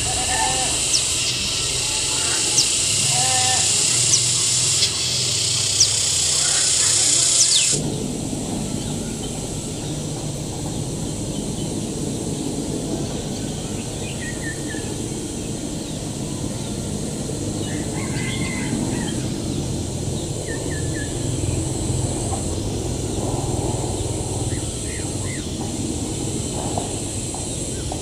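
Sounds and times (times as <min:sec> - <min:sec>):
small birds chirping: 0:00.0 - 0:07.8
even high hiss: 0:00.0 - 0:28.0.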